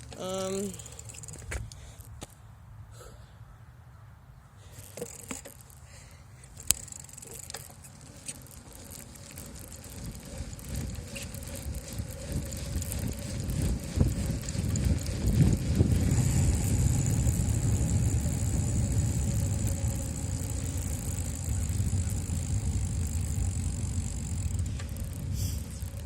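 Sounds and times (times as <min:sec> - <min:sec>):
faint high whine: 0:06.6 - 0:26.0
wind buffeting microphone: 0:08.8 - 0:26.0.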